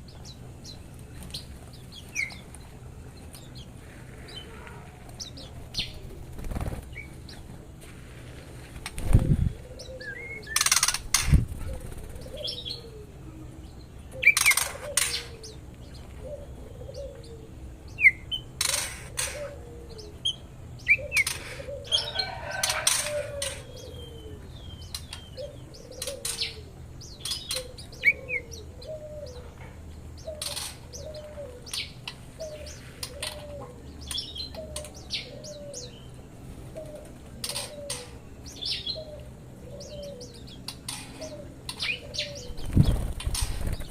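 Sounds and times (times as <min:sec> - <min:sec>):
wings flapping: 0:05.0 - 0:07.2, 0:08.2 - 0:09.6, 0:10.6 - 0:12.4, 0:42.5 - 0:43.9.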